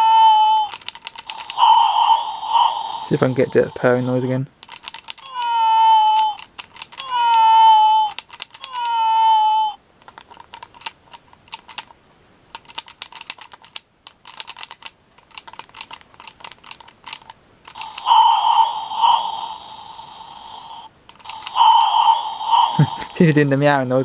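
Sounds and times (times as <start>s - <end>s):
electronic toy meow: 0.0s - 3.4s, 5.2s - 6.4s, 7.0s - 9.8s, 17.8s - 20.0s, 20.6s - 23.0s
buzzy pulsing electronic sound: 1.6s - 4.3s.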